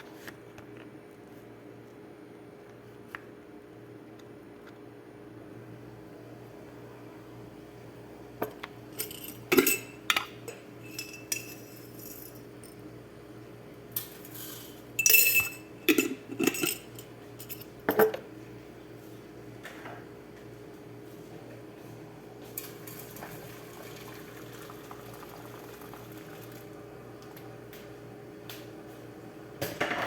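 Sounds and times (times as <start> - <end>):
faint steady hum: 0.0 - 30.0
dishes and utensils clattering: 8.4 - 12.8, 14.0 - 18.2.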